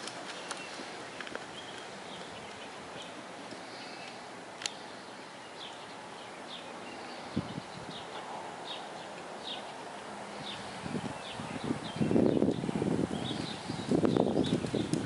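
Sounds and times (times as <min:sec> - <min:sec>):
birds chirping: 0:00.0 - 0:15.0
steady background hiss: 0:00.0 - 0:15.0.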